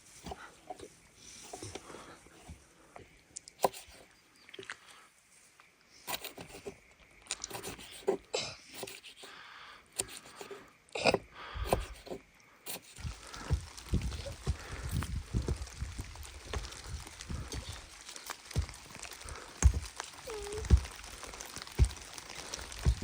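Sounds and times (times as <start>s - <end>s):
objects knocking and clicking: 13.0s - 23.0s.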